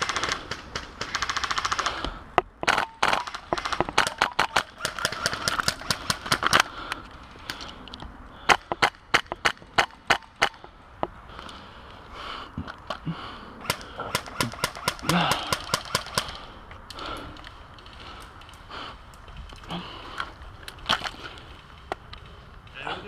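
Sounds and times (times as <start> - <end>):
airsoft gun shots: 13.6 - 16.4.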